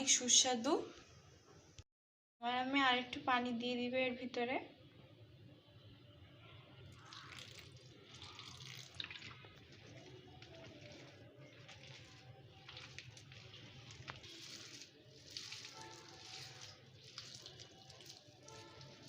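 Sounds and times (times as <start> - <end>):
wet squelching of batter: 6.9 - 19.0.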